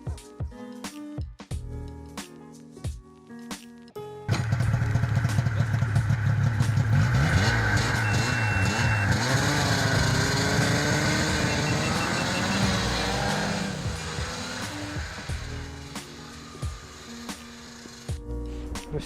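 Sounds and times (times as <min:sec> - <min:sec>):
snowmobile engine revving: 0:04.3 - 0:18.1.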